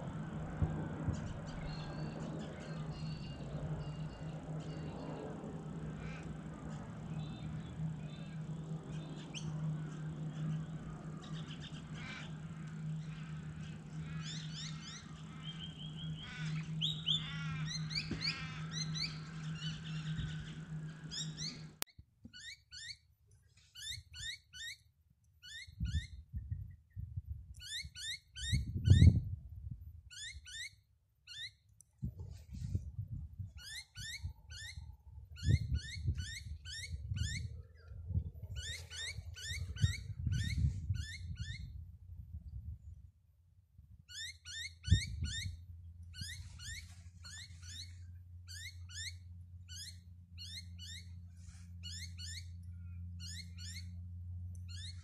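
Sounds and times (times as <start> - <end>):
birds chirping and calling: 0.0 - 21.8, 33.6 - 41.7, 44.1 - 45.5, 46.2 - 55.0
steady low hum: 0.0 - 21.9, 31.9 - 55.0
bird quick chirps: 46.2 - 52.6.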